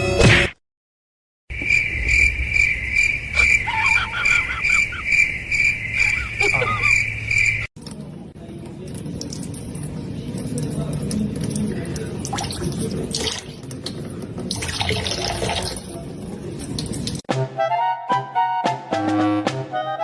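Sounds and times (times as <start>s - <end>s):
cricket chirping: 1.5s - 7.7s.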